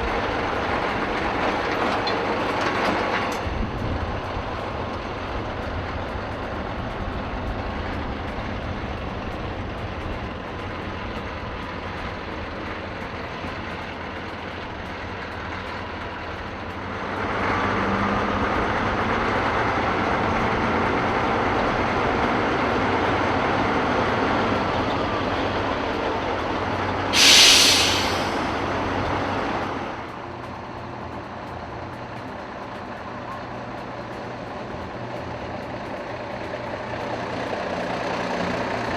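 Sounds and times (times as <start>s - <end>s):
heavy truck engines: 0.0s - 38.9s
air brakes hissing: 27.0s - 29.3s.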